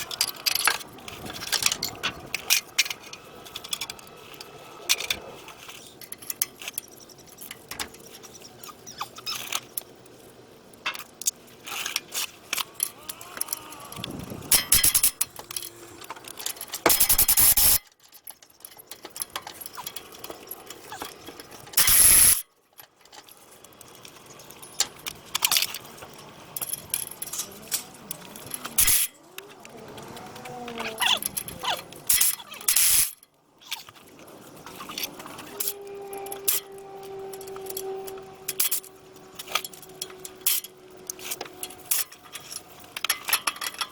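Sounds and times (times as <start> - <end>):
metallic clinks and rattles of tools: 0.0 - 43.9
faint squeaks: 6.6 - 9.7, 27.2 - 32.7, 34.6 - 40.3.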